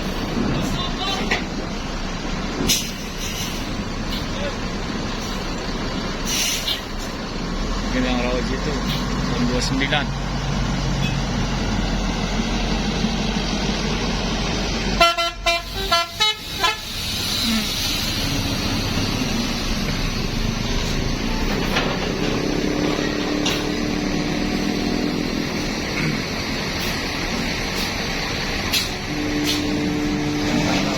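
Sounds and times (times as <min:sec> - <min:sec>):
road traffic noise: 0:00.0 - 0:30.9
bus horn toots: 0:14.9 - 0:17.0, 0:22.4 - 0:25.4, 0:28.7 - 0:30.9.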